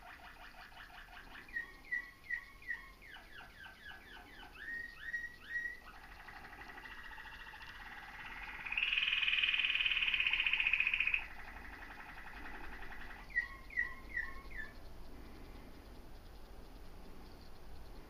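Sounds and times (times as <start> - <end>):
bird rapid trill: 0.0 - 18.0.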